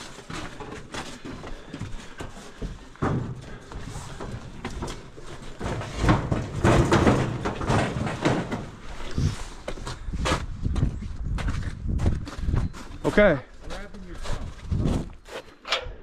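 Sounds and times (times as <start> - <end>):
heavy objects knocking and thumping: 2.6 - 9.2.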